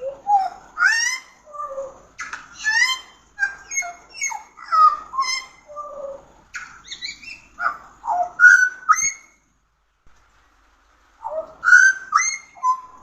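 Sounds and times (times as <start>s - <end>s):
bird singing fluting whistles: 11.2s - 13.0s.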